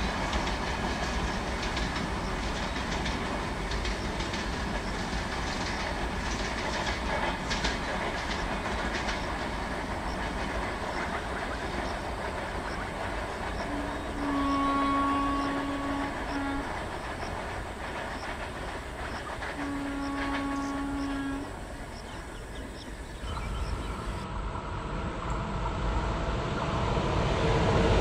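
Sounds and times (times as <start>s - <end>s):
train rumbling past: 0.0s - 28.0s
train horn: 13.6s - 17.5s, 19.2s - 22.0s.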